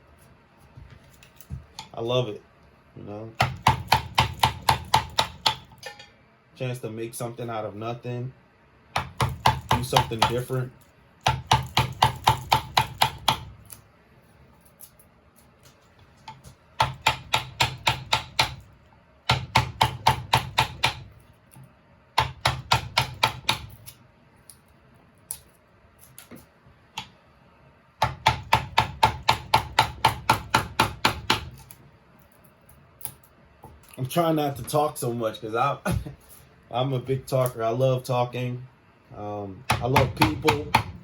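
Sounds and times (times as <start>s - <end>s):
carving tool tapping wood: 3.4s - 5.7s, 9.0s - 10.4s, 11.2s - 13.5s, 16.3s - 18.6s, 19.3s - 21.1s, 22.2s - 23.8s, 28.0s - 31.6s, 39.7s - 41.0s.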